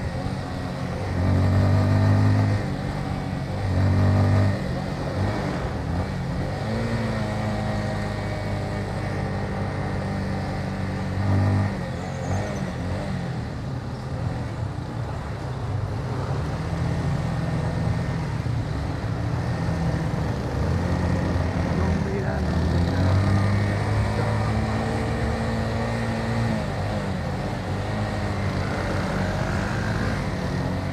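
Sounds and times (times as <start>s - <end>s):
motorcycle engine revving: 0.0s - 30.9s
wind and road noise: 0.0s - 30.9s.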